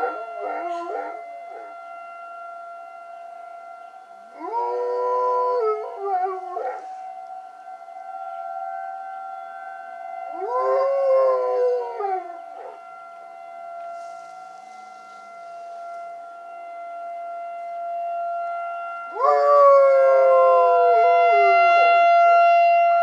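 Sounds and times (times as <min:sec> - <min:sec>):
dog howling: 0:00.0 - 0:01.7, 0:04.4 - 0:07.0, 0:10.3 - 0:12.8
warning siren steady tone: 0:00.0 - 0:23.0.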